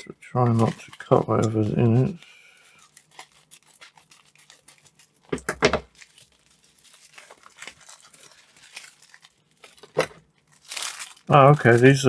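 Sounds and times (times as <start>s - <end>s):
plastic bag crinkling: 0.3s - 12.0s.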